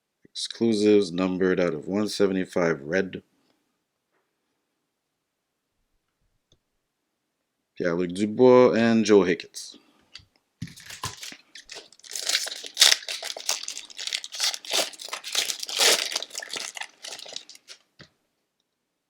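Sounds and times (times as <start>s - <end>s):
foil wrapper tearing and crinkling: 10.7s - 17.8s.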